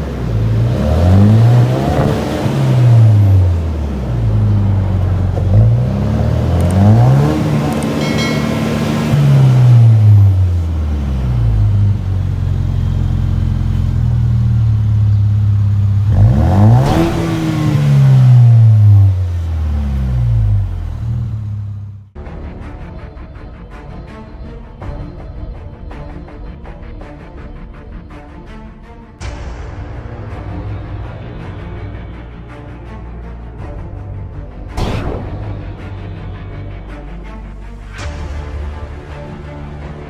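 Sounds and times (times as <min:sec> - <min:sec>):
pickup truck engine revving: 0:00.0 - 0:22.1.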